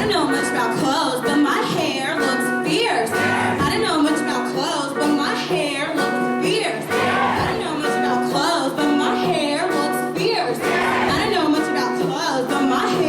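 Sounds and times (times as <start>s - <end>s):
instrumental accompaniment: 0.0s - 13.0s
choir singing: 2.8s - 4.0s, 6.6s - 9.2s, 10.4s - 11.8s.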